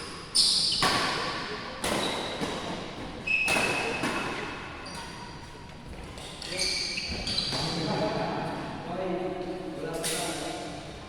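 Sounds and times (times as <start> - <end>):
shoe squeaks: 0.3 - 0.9, 3.2 - 4.0, 6.4 - 7.8
rackets hitting shuttlecock: 0.8 - 5.1.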